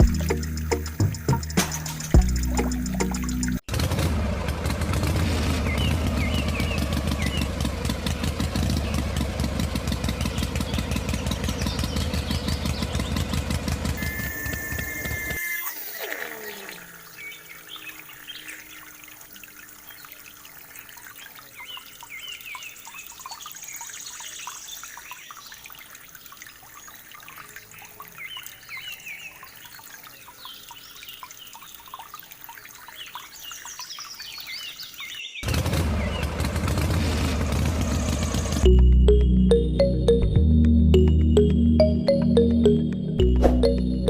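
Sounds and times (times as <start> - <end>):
small motor spinning down: 13.9 - 19.4
water trickling: 15.4 - 35.4
water drips and splashes: 15.7 - 35.5.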